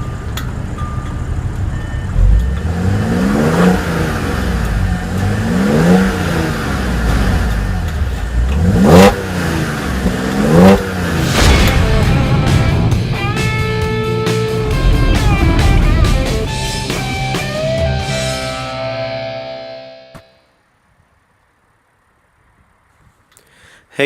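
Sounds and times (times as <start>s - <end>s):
car engine idling and revving: 0.0s - 19.4s
low thump: 11.2s - 17.6s.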